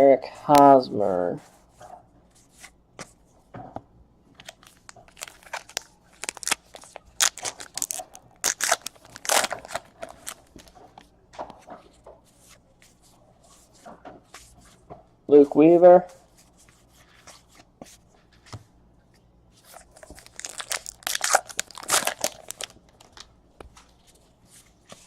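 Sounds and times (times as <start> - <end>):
wrappers and cards crinkling: 4.4 - 11.0, 19.6 - 25.0.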